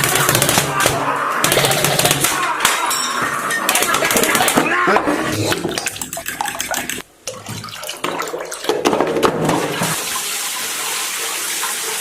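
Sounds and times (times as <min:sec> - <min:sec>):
water running with hiss: 0:09.8 - 0:12.0.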